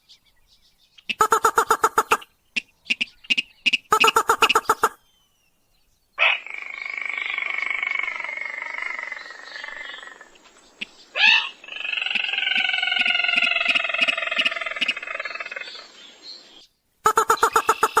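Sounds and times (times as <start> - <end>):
crake buzzy trill: 1.2 - 2.1, 17.1 - 18.0.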